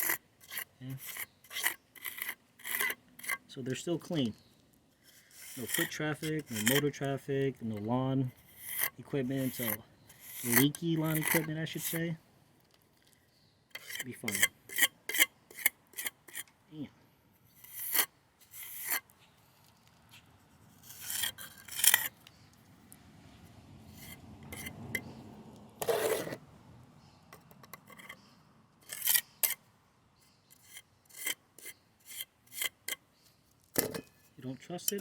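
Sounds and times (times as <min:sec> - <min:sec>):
hand tool scraping concrete: 0:00.0 - 0:04.4, 0:05.0 - 0:12.1, 0:13.7 - 0:16.5, 0:17.5 - 0:19.2, 0:20.7 - 0:22.3, 0:23.9 - 0:25.2, 0:25.8 - 0:26.4, 0:27.4 - 0:29.6, 0:30.5 - 0:33.0, 0:33.8 - 0:35.0.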